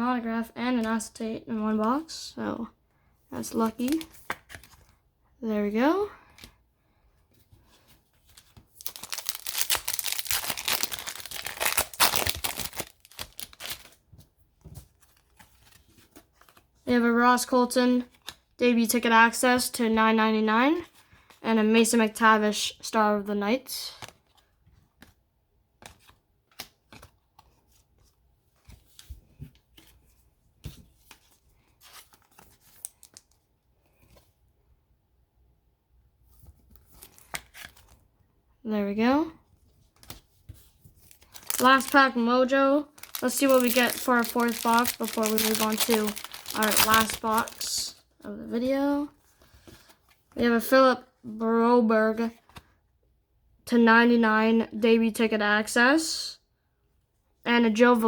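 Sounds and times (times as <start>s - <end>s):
foil wrapper tearing and crinkling: 8.8s - 13.9s, 41.1s - 42.0s, 43.0s - 47.8s.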